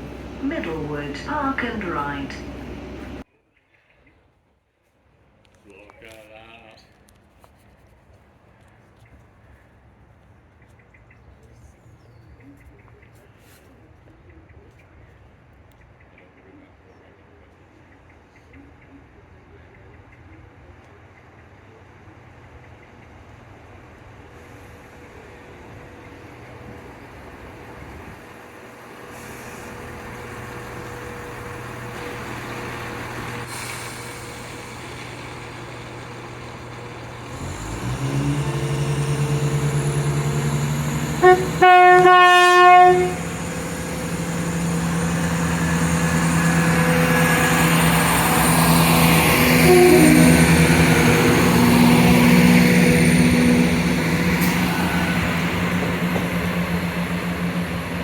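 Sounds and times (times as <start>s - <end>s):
diesel train engine: 0.0s - 3.3s, 15.3s - 58.0s
train horn blast: 37.3s - 48.2s, 48.8s - 55.8s.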